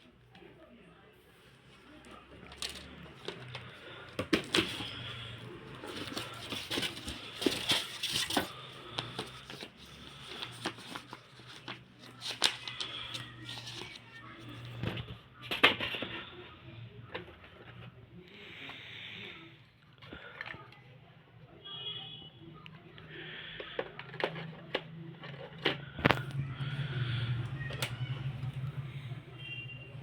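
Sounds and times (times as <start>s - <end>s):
rustling: 1.5s - 14.8s.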